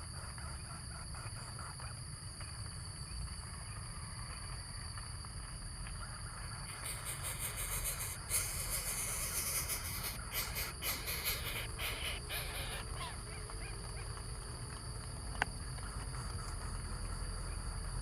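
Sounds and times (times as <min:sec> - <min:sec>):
high-pitched insect drone: 0:06.6 - 0:13.3
crackling and rustling: 0:12.7 - 0:18.0.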